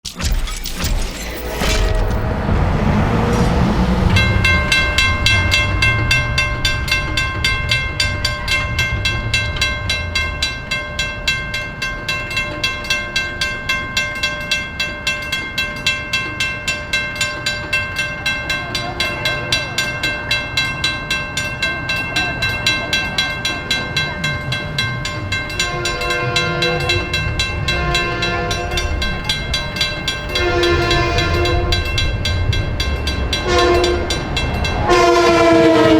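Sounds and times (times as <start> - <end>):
low rumble: 0.6 - 12.6, 23.9 - 35.9
level crossing warning bell: 1.4 - 35.9
train horn blasts: 1.6 - 11.1, 25.0 - 35.9.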